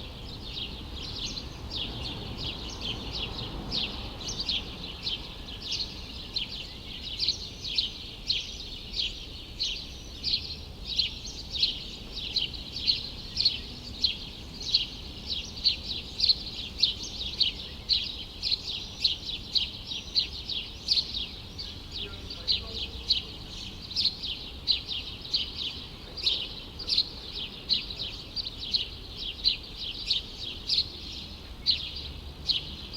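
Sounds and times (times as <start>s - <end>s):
low hum of city background: 0.0s - 32.9s
small birds chirping: 0.0s - 32.9s.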